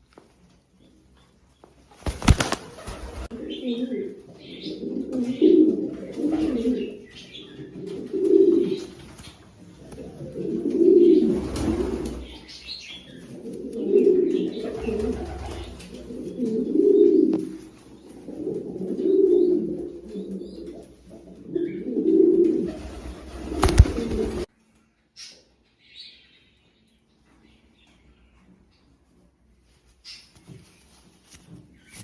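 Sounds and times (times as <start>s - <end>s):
pigeons cooing: 2.8s - 24.5s.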